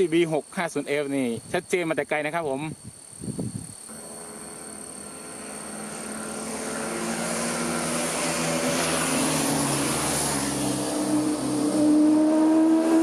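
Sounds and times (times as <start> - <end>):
motorcycle engine approaching: 3.9 - 13.0.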